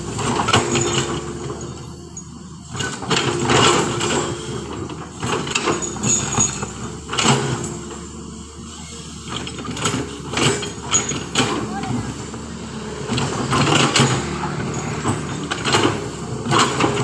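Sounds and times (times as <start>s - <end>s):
diesel engine running: 0.0s - 17.0s
metallic clanks and scrapes: 9.3s - 17.0s.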